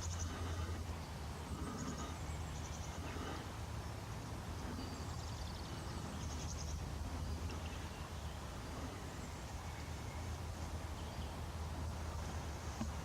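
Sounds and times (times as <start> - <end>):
bird chirping trills: 0.0 - 3.5, 4.3 - 13.0
steady low hum: 0.0 - 13.0.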